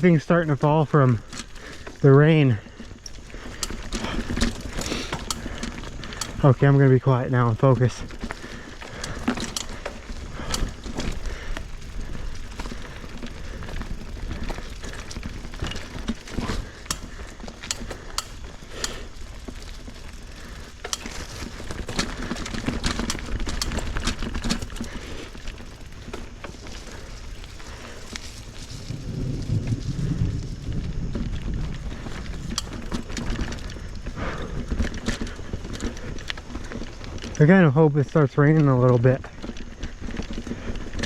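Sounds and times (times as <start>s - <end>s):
tyres rumbling: 0.0s - 38.3s
bike clicks and rattles: 0.0s - 41.0s
wind on microphone: 27.3s - 34.7s.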